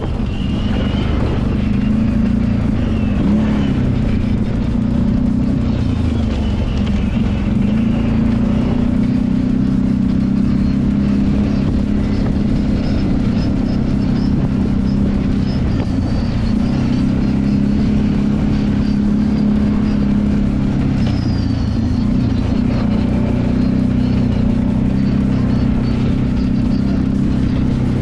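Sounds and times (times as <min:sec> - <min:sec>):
atv engine running: 0:00.0 - 0:28.0.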